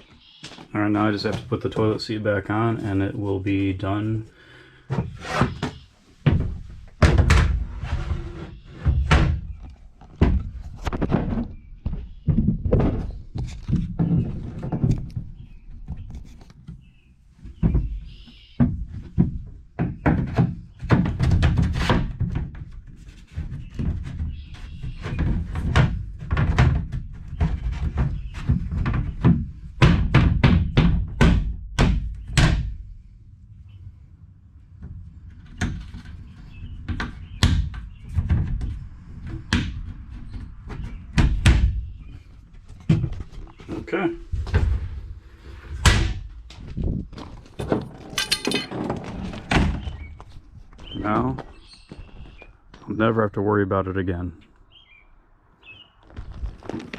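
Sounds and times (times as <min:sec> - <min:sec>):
toilet seat thunks and knocks: 0:06.2 - 0:07.7.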